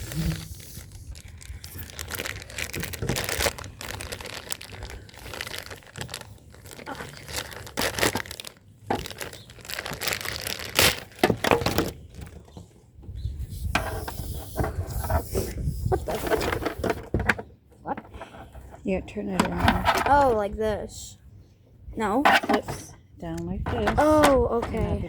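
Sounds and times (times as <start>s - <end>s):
packaging crinkling and rustling: 0.0s - 12.6s, 15.9s - 17.4s.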